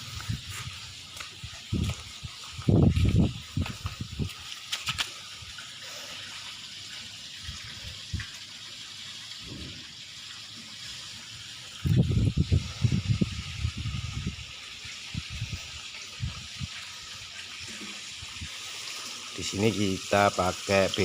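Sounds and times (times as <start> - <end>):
water rushing: 0.0 - 21.0.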